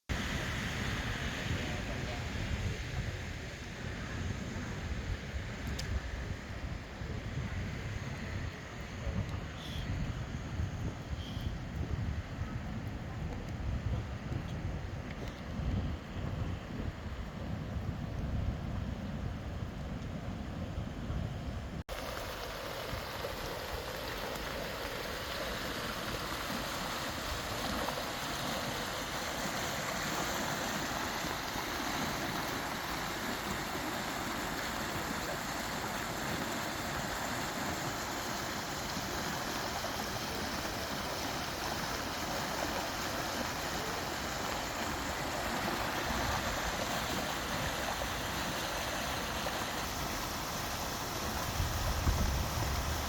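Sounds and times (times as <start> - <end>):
floodwater rushing: 21.9 - 53.0.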